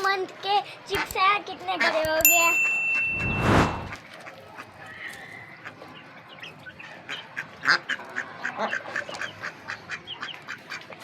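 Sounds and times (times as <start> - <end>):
chicks and ducklings peeping: 4.3 - 11.0.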